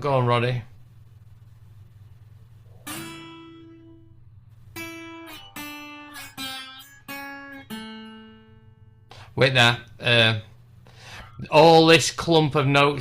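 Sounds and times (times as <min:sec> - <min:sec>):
slide guitar notes: 0:02.7 - 0:09.2.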